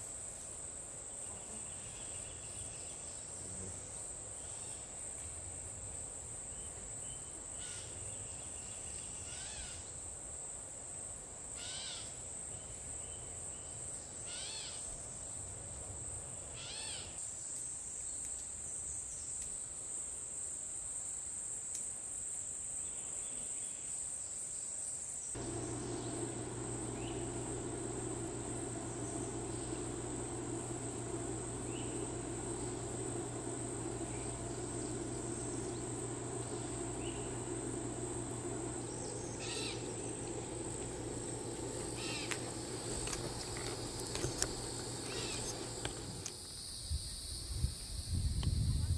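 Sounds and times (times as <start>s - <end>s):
low hum: 25.4s - 46.3s
crickets trilling: 25.4s - 47.5s.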